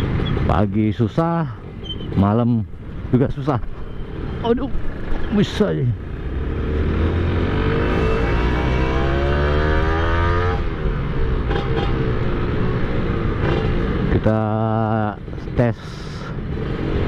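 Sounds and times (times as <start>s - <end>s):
motorcycle engine accelerating: 6.0s - 14.1s.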